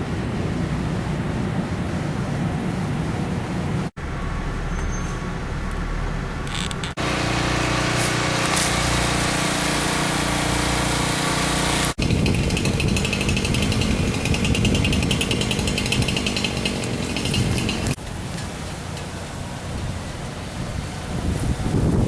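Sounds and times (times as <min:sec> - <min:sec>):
engine drone: 0:00.0 - 0:22.0
rattling machine chatter: 0:06.5 - 0:18.0.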